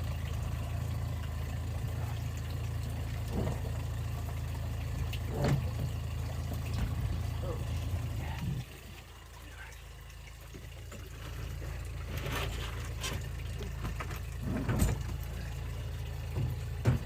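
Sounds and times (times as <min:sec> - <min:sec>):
boat engine running: 0:00.0 - 0:17.0
water splashing along hull: 0:00.0 - 0:17.0
thump: 0:16.4 - 0:17.0.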